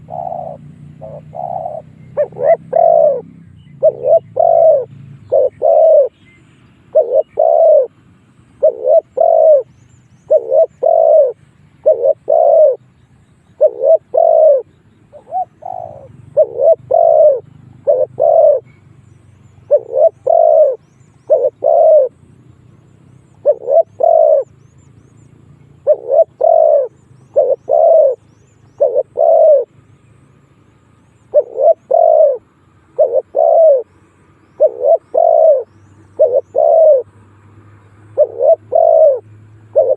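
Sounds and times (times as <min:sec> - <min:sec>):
dove cooing: 0:00.0 - 0:24.6, 0:25.7 - 0:29.8, 0:31.0 - 0:39.9.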